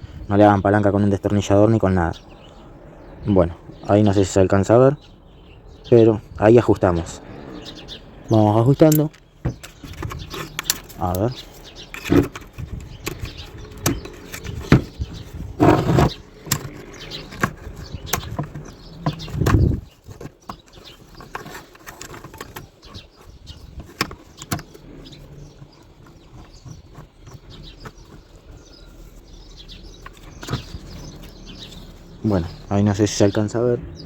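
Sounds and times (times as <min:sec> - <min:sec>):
scraping handling noises: 0:06.6 - 0:33.4.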